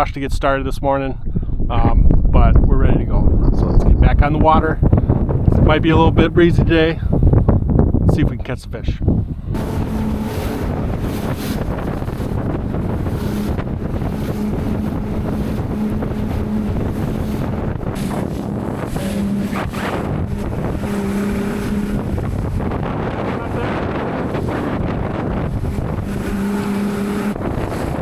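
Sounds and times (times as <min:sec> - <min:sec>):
wind buffeting microphone: 0:00.0 - 0:28.0
outboard motor running: 0:09.3 - 0:28.0.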